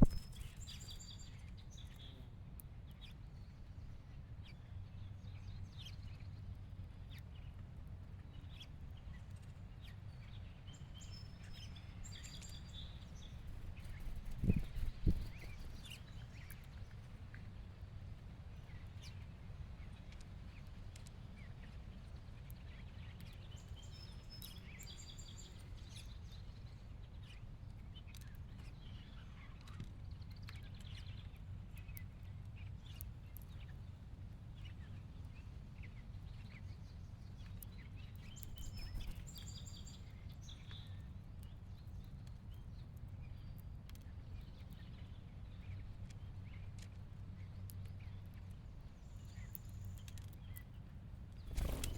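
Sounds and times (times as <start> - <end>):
finches chirping: 0.0 - 0.6.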